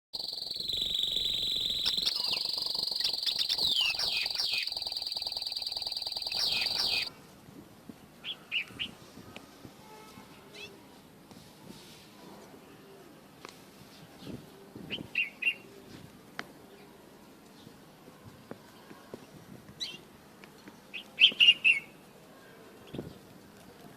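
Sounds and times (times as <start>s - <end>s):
steady high-pitched tone: 0.0s - 7.1s
bird whistling and trilling: 0.2s - 7.1s.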